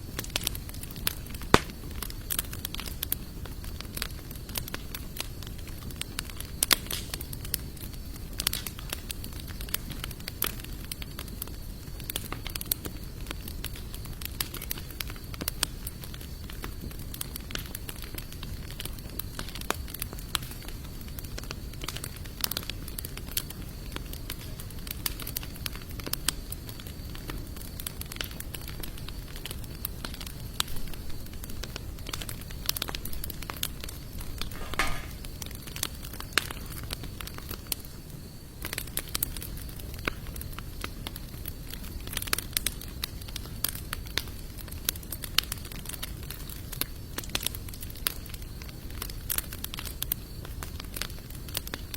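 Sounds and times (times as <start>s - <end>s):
campfire crackling and popping: 0.0s - 51.9s
rustle of flame: 0.0s - 51.9s.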